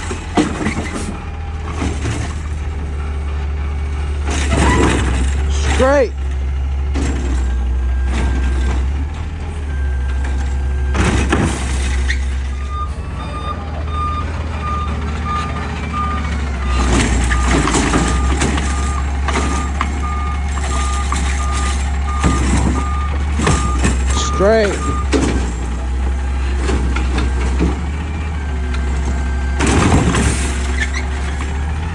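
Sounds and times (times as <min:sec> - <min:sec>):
truck engine drone: 0:00.0 - 0:31.9
reversing beeper: 0:07.1 - 0:31.1.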